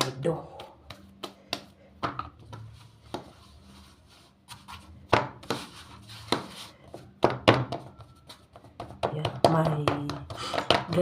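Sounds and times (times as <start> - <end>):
dough rubbing and scraping: 0.5 - 11.0
dough knocking on surface: 5.1 - 11.0.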